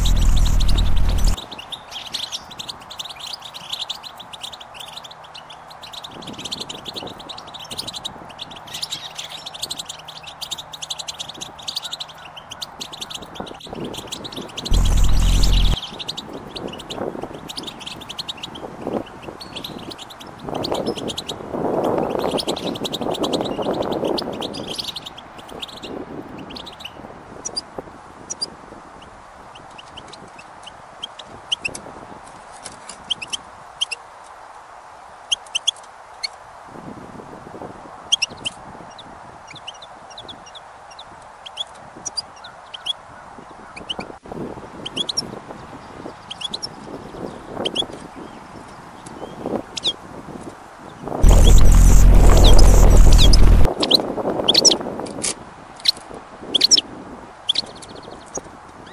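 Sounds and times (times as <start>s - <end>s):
low rushing noise: 0.0s - 1.4s, 14.7s - 15.8s, 51.2s - 53.7s
small birds chirping: 0.0s - 27.6s, 51.2s - 54.0s.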